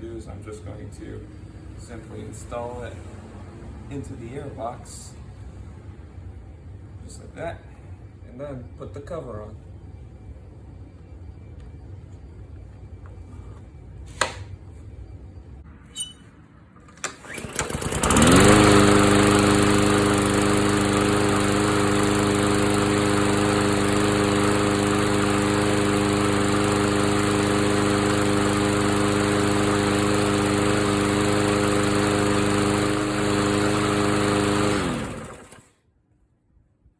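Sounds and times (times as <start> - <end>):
lawn mower engine running: 16.9 - 35.7.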